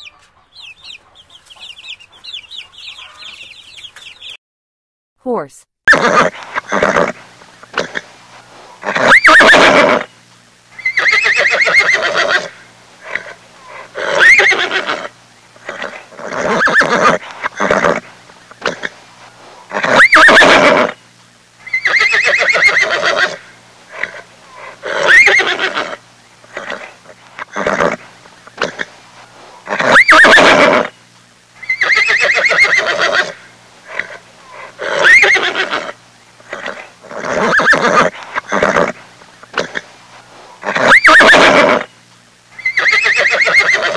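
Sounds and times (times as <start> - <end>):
horse whinnying: 5.9 - 7.2, 8.8 - 10.1, 10.8 - 18.9, 19.7 - 21.0, 21.7 - 26.0, 27.5 - 28.0, 29.7 - 30.9, 31.6 - 39.8, 40.6 - 41.9, 42.6 - 43.9.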